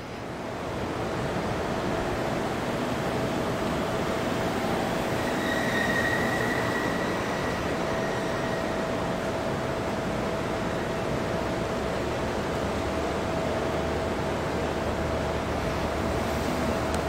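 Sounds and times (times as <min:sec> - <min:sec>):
freight train rumbling: 0:00.0 - 0:17.0
high thin squeal: 0:05.1 - 0:08.9.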